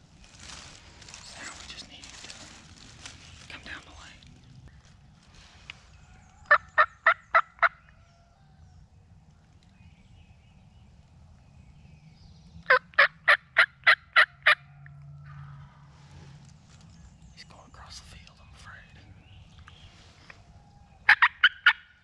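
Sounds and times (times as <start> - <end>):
wild turkey yelping: 6.4 - 8.0, 12.7 - 14.8, 21.0 - 22.0.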